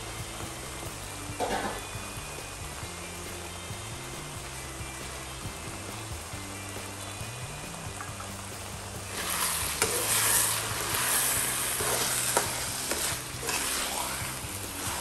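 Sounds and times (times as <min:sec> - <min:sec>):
filling sizzling in a frying pan: 0:00.0 - 0:15.0
utensil scraping and tapping pan: 0:09.2 - 0:15.0.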